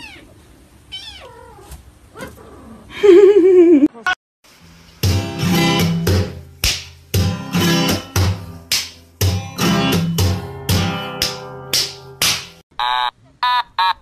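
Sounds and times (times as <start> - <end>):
cat meowing: 0.0 - 2.4
strummed acoustic guitar: 5.0 - 11.8.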